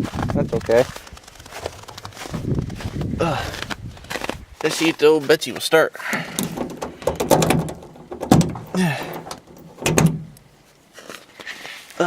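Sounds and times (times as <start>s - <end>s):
truck door latch clicks and clunks: 6.1s - 10.5s.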